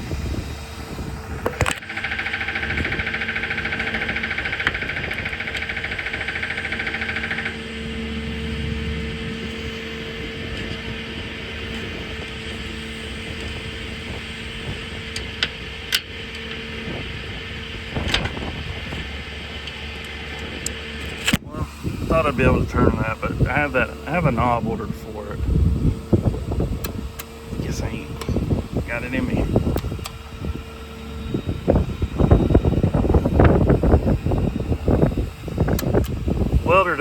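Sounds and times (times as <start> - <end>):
welder engine running: 0.0 - 37.0
sharp clicks: 35.6 - 36.2.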